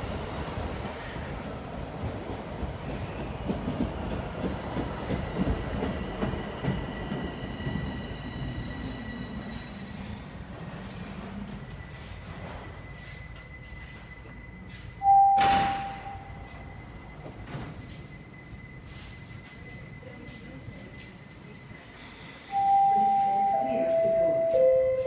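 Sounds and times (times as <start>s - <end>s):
subway train rumbling on rails: 0.0s - 25.0s
high squealing wheels: 5.2s - 15.1s.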